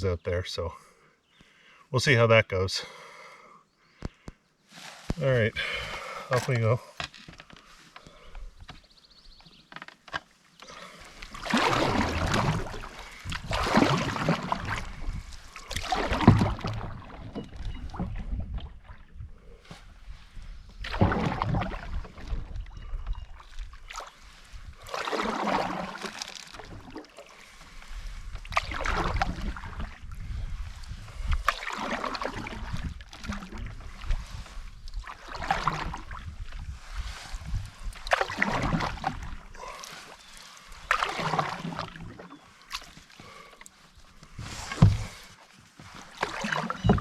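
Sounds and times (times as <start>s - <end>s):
canoe paddle splashing in water: 9.6s - 47.0s.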